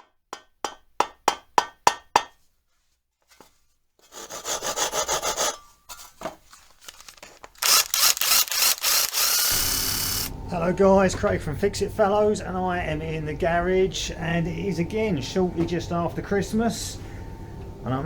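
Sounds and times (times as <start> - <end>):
rasping tool strokes: 4.0 - 5.7, 6.9 - 10.3.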